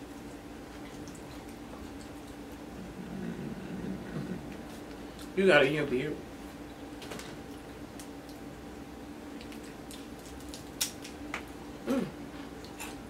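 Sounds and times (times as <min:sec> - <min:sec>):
faint hum: 0:00.0 - 0:13.0
chewing and lip-smacking: 0:09.3 - 0:11.5.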